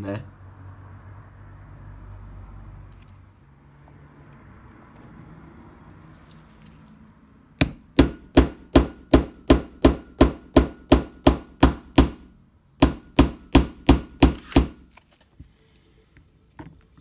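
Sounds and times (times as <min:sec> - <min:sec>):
hammer tapping metal punch: 0:07.6 - 0:14.8.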